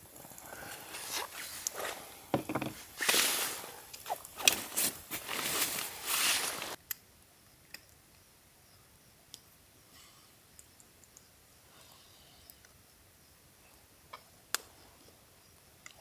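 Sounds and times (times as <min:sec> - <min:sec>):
rustling and scuffing: 0:00.1 - 0:06.8.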